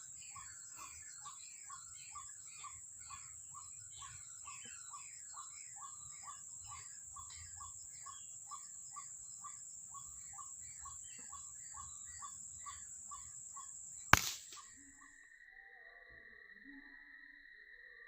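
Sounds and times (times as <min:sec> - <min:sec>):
gunshot: 0:14.2 - 0:14.6.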